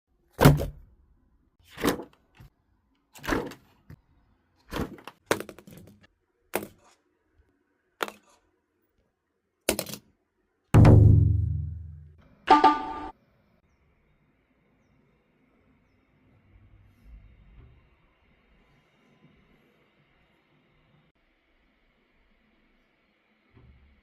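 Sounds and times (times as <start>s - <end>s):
short pitched tone: 12.5s - 13.1s.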